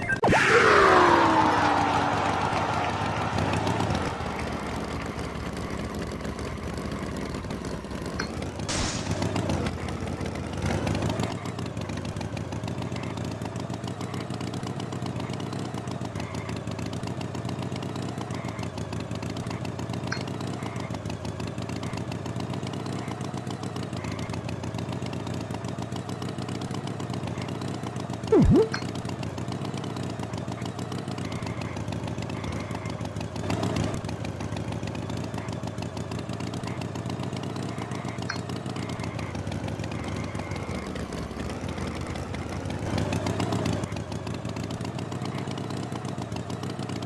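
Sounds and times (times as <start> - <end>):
vehicle engine running: 0.0 - 47.0
brief louder sounds: 28.3 - 28.8.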